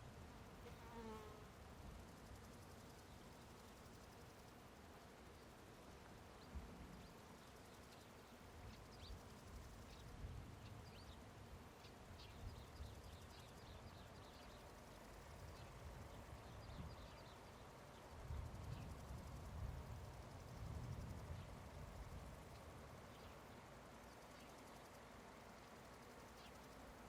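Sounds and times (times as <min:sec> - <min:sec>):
small birds chirping: 0:06.2 - 0:19.0, 0:22.5 - 0:27.0.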